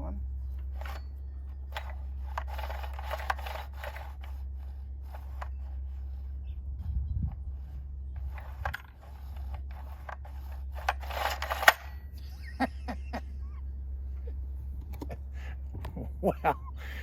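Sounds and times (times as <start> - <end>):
recoil starter rasp: 0.0 - 13.1
steady low hum: 0.0 - 17.0
chainsaw starter clicks: 0.6 - 6.2, 7.6 - 12.2.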